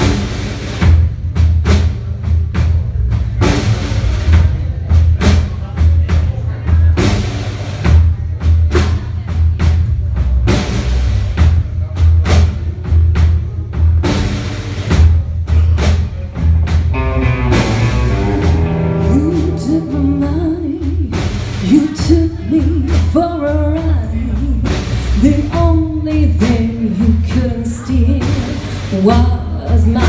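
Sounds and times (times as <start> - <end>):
bass line: 0.0 - 30.0
drum kit beat: 0.0 - 30.0
melody with bending notes: 17.0 - 21.2.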